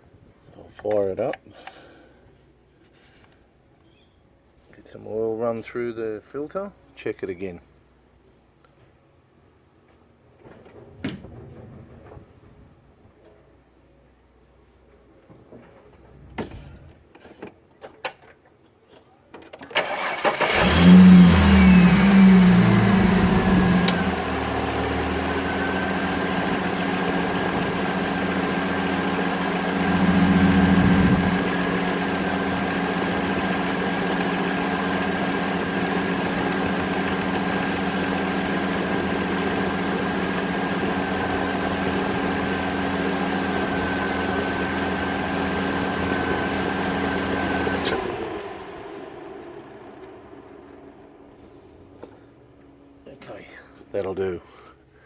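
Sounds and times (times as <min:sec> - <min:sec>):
car engine starting and idling: 0:19.6 - 0:52.1
clicks: 0:23.8 - 0:24.1.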